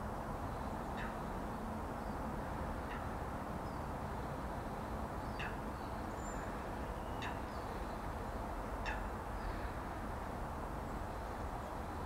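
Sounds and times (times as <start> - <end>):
background hiss and rumble: 0.0 - 12.0.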